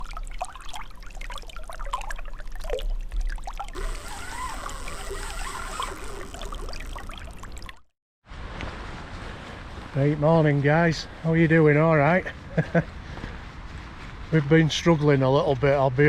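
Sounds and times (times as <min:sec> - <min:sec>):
water trickling and splashing: 0:00.0 - 0:07.9.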